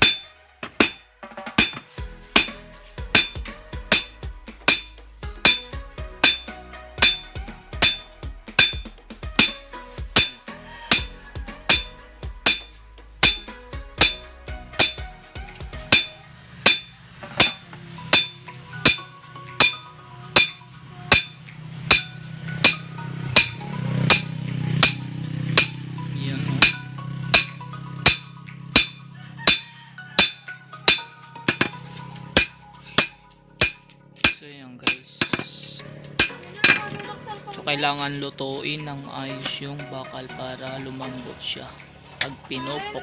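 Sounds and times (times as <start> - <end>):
steady low hum: 0.0 - 29.6
hammer striking steel on anvil: 0.0 - 37.0.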